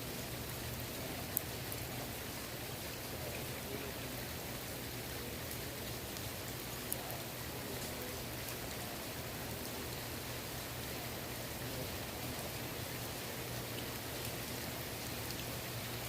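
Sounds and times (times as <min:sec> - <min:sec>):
rain pattering on water: 0:00.0 - 0:16.0
small drip ticks: 0:00.7 - 0:02.0, 0:05.4 - 0:08.8, 0:12.3 - 0:16.0.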